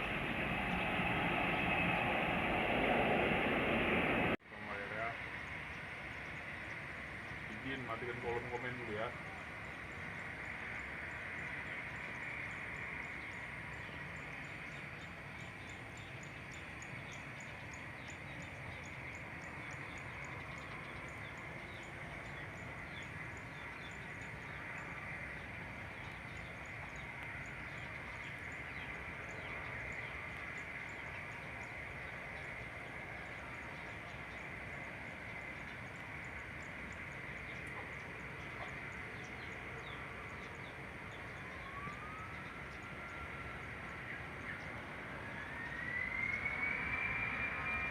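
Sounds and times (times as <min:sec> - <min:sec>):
low rumble and hiss: 0:00.0 - 0:05.2.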